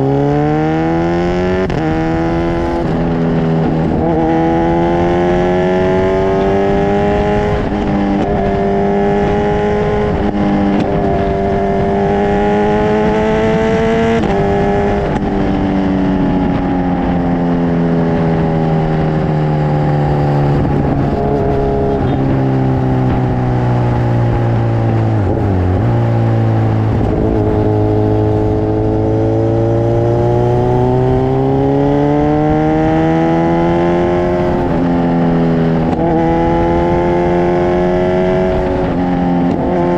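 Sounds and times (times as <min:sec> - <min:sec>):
motorcycle engine revving under load: 0:00.0 - 0:39.9.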